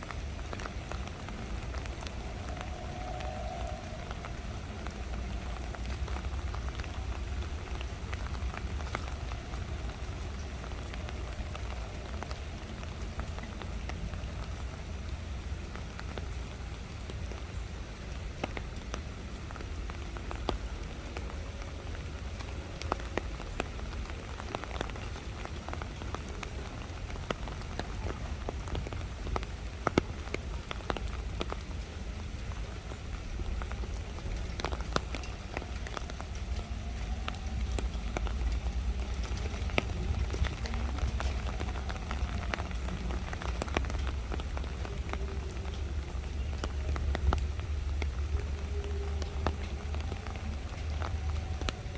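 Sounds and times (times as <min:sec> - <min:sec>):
low rumble: 0:00.0 - 0:16.6, 0:31.1 - 0:51.9
raindrops ticking sharply: 0:00.0 - 0:51.9
steady rain: 0:00.0 - 0:51.9.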